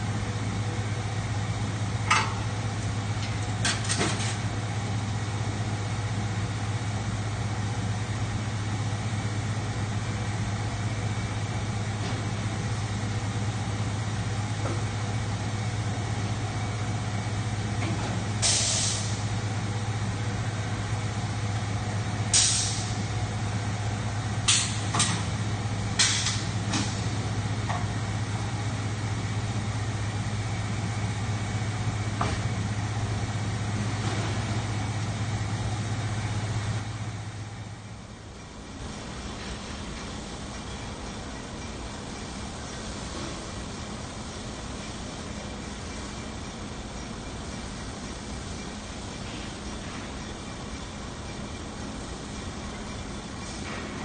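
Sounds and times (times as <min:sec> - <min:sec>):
factory machinery hum: 0:00.0 - 0:54.0
compressed air hiss: 0:18.4 - 0:19.2, 0:22.4 - 0:23.0.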